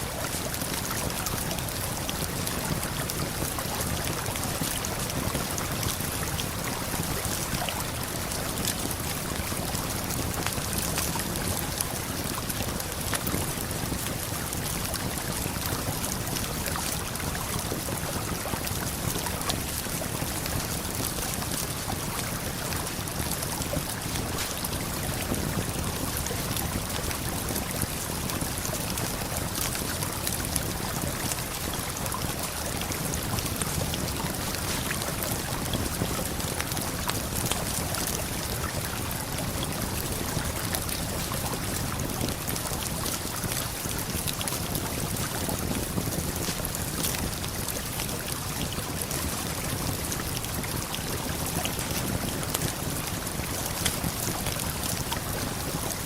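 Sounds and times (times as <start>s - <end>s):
campfire crackling: 8.0s - 55.4s
waterfall and river rushing: 34.4s - 35.4s.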